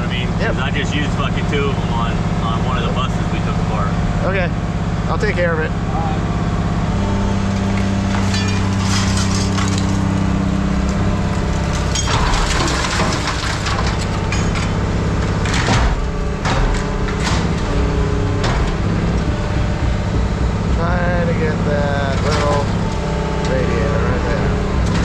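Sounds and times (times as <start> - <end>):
diesel engine running: 0.0 - 25.0
scrap metal clanking and crunching: 7.0 - 25.0.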